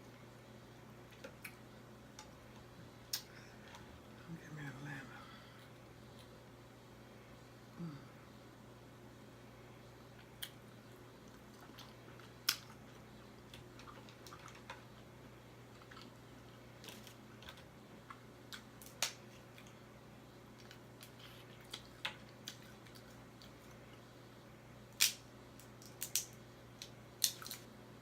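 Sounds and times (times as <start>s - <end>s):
quiet chewing: 5.6s - 6.4s, 10.1s - 19.8s, 20.4s - 24.1s
crab shells cracking: 11.7s - 12.8s, 24.9s - 27.7s.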